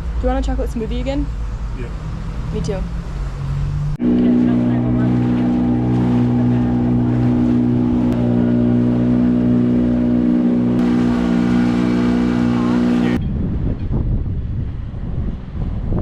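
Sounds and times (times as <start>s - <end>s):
motor running steadily: 4.0s - 13.2s.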